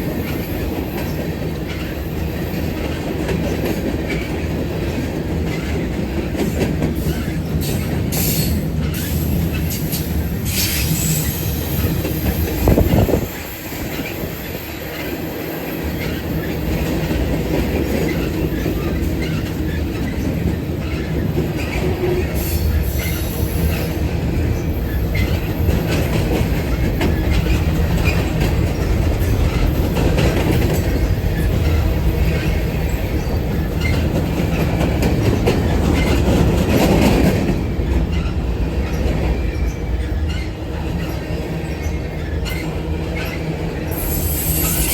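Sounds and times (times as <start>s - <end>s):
train wheels clattering on rails: 0.0s - 44.9s
high wheel squealing: 43.9s - 44.9s.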